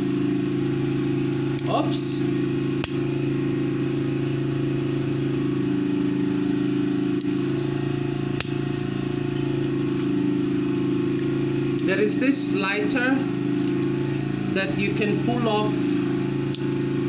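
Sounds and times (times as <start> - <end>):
low engine drone: 0.0 - 17.0
sharp clicks: 2.8 - 3.0.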